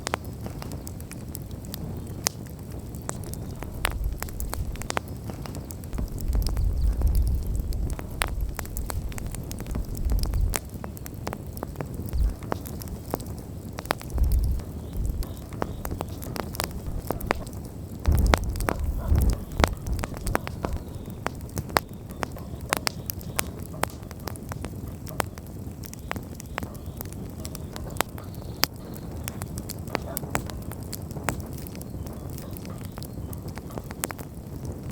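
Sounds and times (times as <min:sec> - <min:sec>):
campfire crackling and popping: 0:00.0 - 0:34.9
faint fire hiss: 0:00.0 - 0:34.9
low rumbles: 0:03.0 - 0:22.8.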